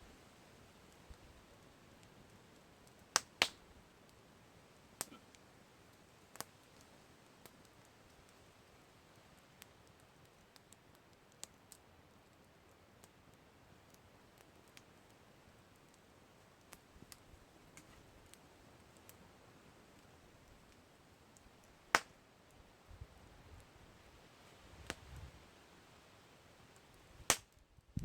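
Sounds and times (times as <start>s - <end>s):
campfire crackling: 0.0s - 28.0s
loud sharp crack of fire: 0.8s - 4.1s, 21.4s - 22.2s, 26.6s - 27.6s.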